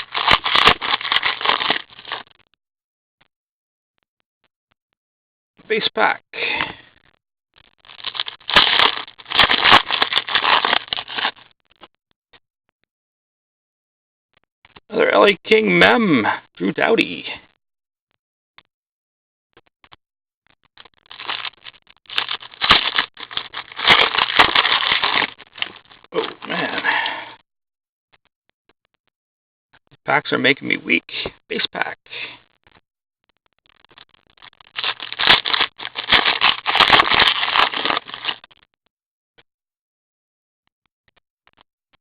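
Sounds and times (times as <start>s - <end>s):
wrapper crackling with sharp clicks: 0.0s - 2.2s, 7.6s - 11.5s, 21.0s - 26.6s, 33.7s - 38.6s
wrapper being torn and crinkled: 0.0s - 2.3s, 7.8s - 11.4s, 21.1s - 26.8s, 33.9s - 38.5s.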